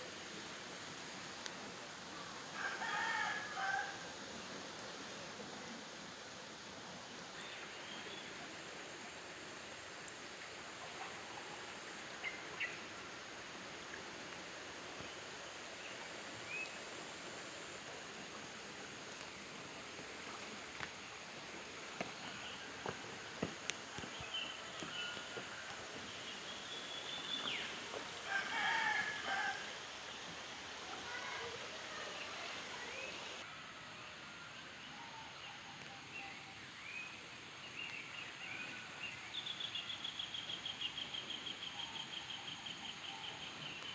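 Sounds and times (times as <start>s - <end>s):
flowing water hiss: 0.0s - 43.9s
roosters crowing: 28.1s - 30.0s.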